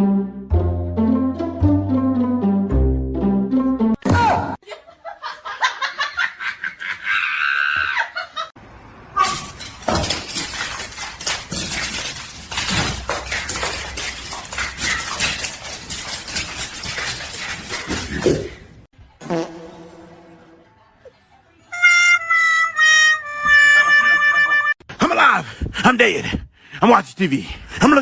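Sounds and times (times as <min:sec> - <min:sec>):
rapid clattering and scraping: 0:09.4 - 0:18.5.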